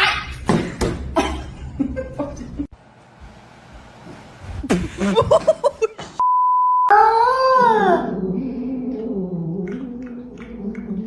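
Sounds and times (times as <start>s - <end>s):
electronic censor bleep: 6.2s - 6.9s.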